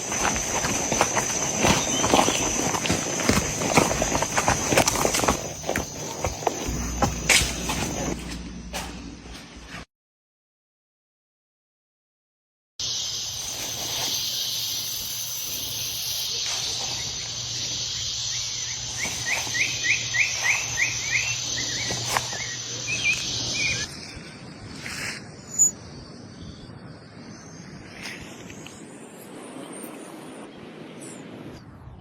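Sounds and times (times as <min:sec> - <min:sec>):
high-pitched insect chorus: 0:00.0 - 0:08.9, 0:12.8 - 0:30.2
outdoor ambience: 0:00.0 - 0:09.9, 0:12.8 - 0:32.0
bird calling sweeping notes: 0:13.9 - 0:23.9.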